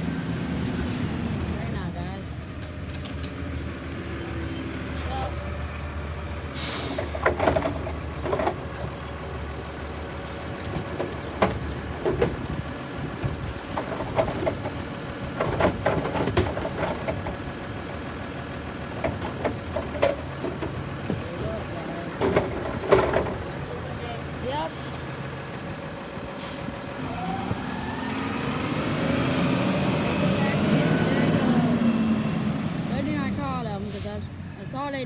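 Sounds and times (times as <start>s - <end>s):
garbage truck engine running: 0.0s - 35.0s
high squealing tones: 3.4s - 10.5s
air brake hiss: 6.4s - 7.1s
trash cart knocks and clatter: 6.7s - 9.2s, 10.2s - 24.0s.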